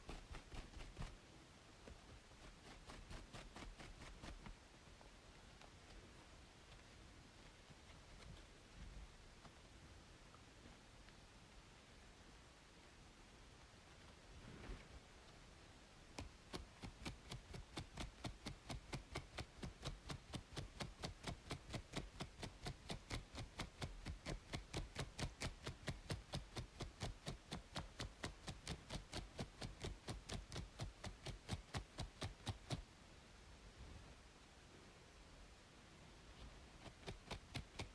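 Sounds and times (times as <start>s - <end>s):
scratching strokes on scalp: 0.0s - 1.2s, 2.0s - 4.6s, 16.2s - 32.8s, 36.4s - 37.9s
faint white-noise hiss: 0.0s - 37.9s.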